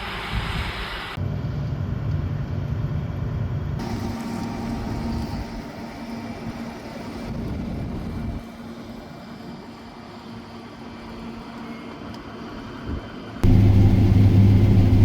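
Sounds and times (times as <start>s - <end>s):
engine hum: 13.4s - 15.0s
heavy machinery engine rumble: 13.4s - 15.0s.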